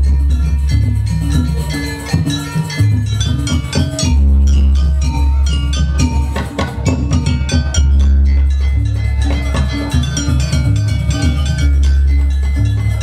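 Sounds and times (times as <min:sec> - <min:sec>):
metallic percussion and drums: 0:00.0 - 0:13.0.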